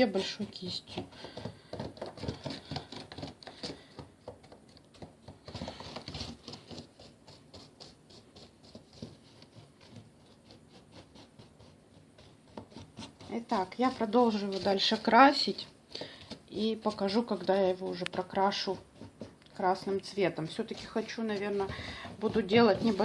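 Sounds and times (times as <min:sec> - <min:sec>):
paintbrush scratching on foam: 0:05.4 - 0:23.0.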